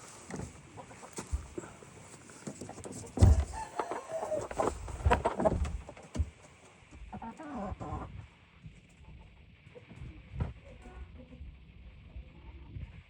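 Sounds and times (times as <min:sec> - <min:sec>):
chicken clucking: 0:00.0 - 0:06.2, 0:07.1 - 0:08.1
loud thump: 0:03.2 - 0:03.6.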